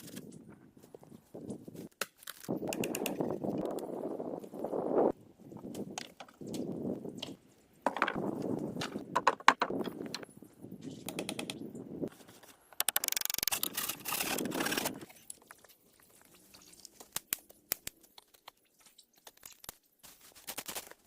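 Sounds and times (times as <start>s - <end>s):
rustling and crunching: 12.1s - 21.0s.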